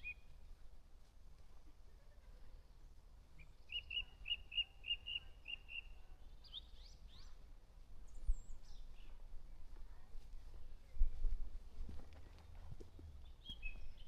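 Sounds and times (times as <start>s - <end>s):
songbirds singing: 0.0s - 0.5s, 2.2s - 9.7s, 12.8s - 14.0s.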